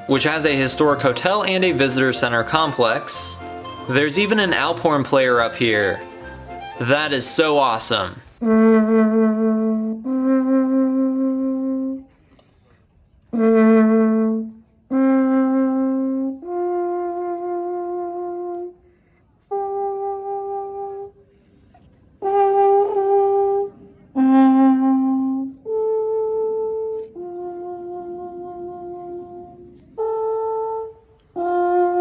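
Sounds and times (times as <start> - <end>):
alphorn playing slow melody: 0.0 - 12.0, 22.3 - 32.0.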